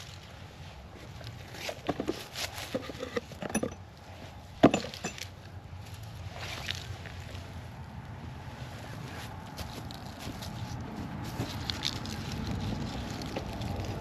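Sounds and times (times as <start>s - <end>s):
metal tools clinking and knocking: 1.9s - 3.9s, 4.6s - 5.3s.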